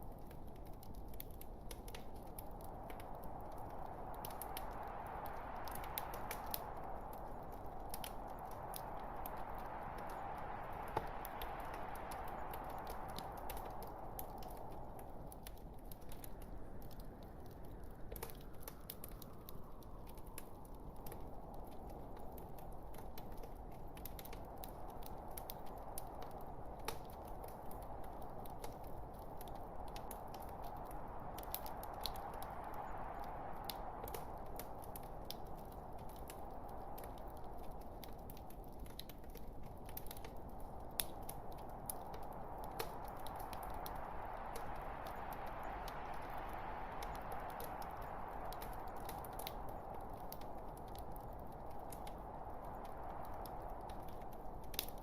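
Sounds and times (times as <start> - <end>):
steady rushing hiss: 0.0 - 55.0
wood fire crackling: 0.0 - 55.0.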